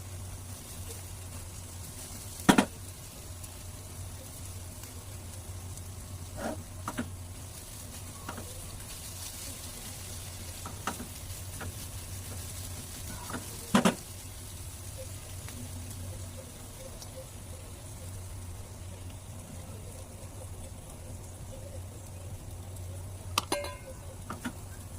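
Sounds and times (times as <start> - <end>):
egg sizzling in a pan: 0.0 - 24.9
steady low hum: 0.0 - 24.9.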